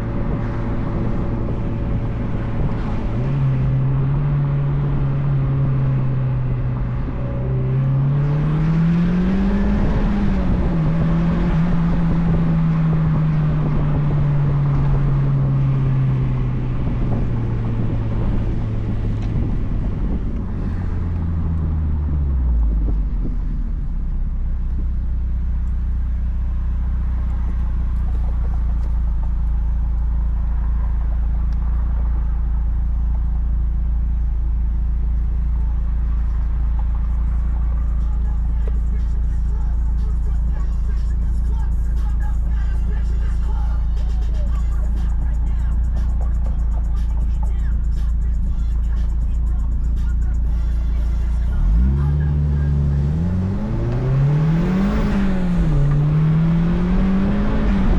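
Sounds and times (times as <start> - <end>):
car engine revving and idling: 0.0 - 57.9
wind: 0.0 - 57.9.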